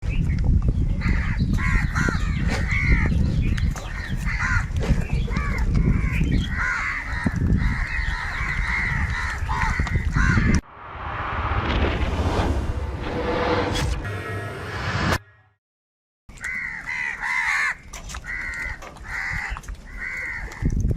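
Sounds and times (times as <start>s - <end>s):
crows cawing: 1.0s - 3.1s, 3.9s - 4.7s, 5.4s - 10.6s, 16.4s - 20.7s
steady low rumble: 10.6s - 15.1s.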